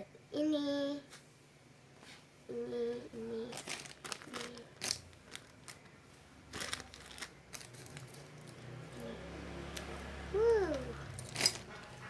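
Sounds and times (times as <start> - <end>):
plastic packaging crinkling: 3.4 - 8.6, 10.7 - 12.0.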